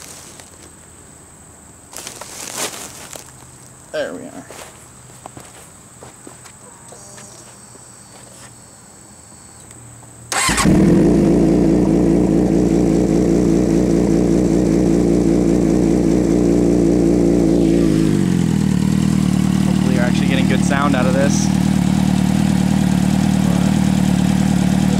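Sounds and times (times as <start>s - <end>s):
motorcycle engine idling: 10.4s - 24.9s.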